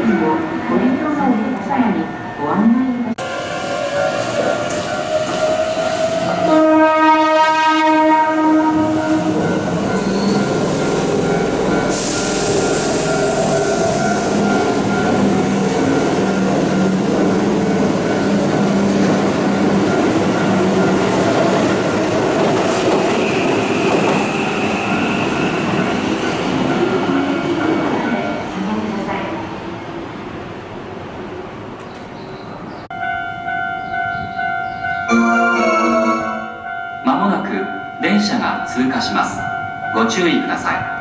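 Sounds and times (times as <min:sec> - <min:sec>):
train motors and wheels on rails: 0:03.2 - 0:07.4, 0:08.4 - 0:32.8
train horn blast: 0:06.4 - 0:09.4, 0:35.1 - 0:36.7.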